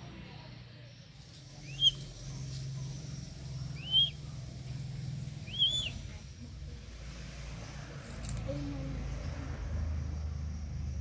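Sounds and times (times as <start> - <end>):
bird calling: 1.6 - 4.3, 5.4 - 6.1.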